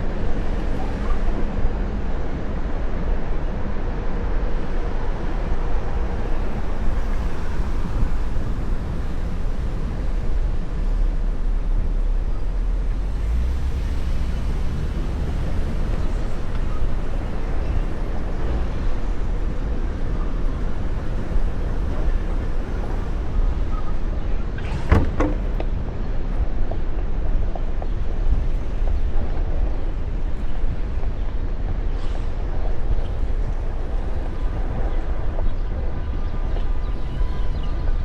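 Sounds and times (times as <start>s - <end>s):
city traffic: 0.0s - 38.0s
wind rush on microphone: 0.0s - 38.0s
tyre noise: 24.5s - 25.9s.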